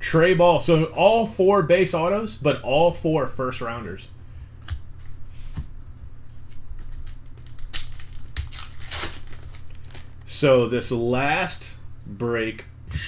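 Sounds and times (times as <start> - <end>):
low steady hum: 0.0 - 13.0
card packs crinkling and rustling: 6.3 - 10.4.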